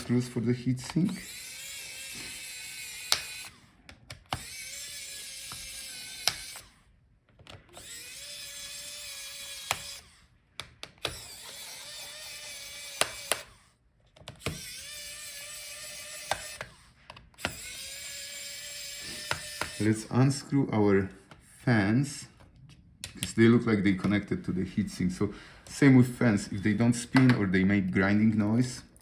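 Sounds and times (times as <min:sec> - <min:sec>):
electric screwdriver whirring: 0:00.0 - 0:20.1
sharp clicks: 0:03.0 - 0:04.5, 0:05.5 - 0:06.7.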